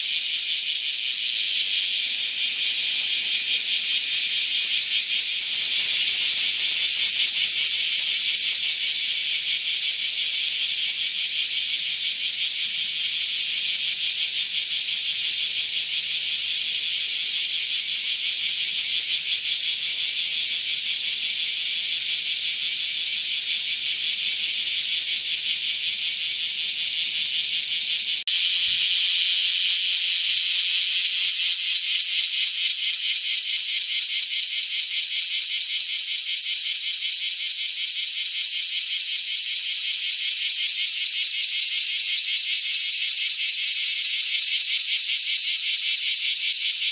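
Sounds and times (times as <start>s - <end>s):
cicadas buzzing: 0.0s - 46.9s.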